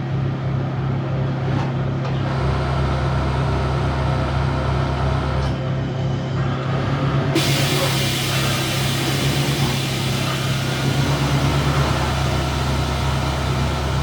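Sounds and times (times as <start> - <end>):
deeper drone: 6.4 - 14.0
machine hum: 7.4 - 14.0.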